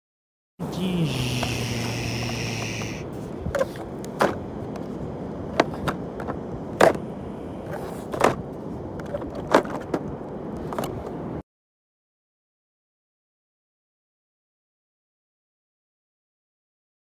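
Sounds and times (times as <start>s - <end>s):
wind: 0.6s - 11.4s.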